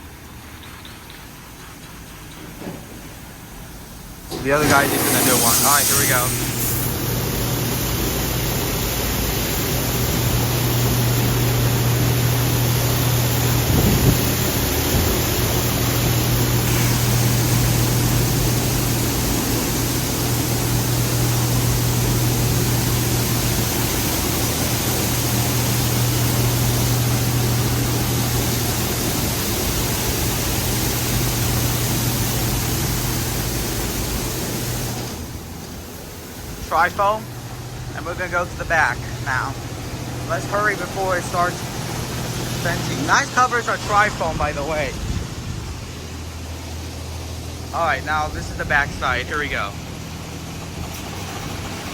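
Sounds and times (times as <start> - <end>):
car wash machine hum: 0.0 - 51.9
water spray hissing: 4.3 - 7.0.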